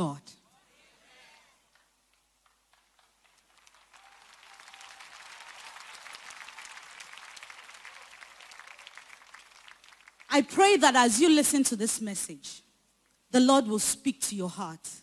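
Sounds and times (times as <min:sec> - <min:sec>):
congregation applauding: 0:01.6 - 0:10.4.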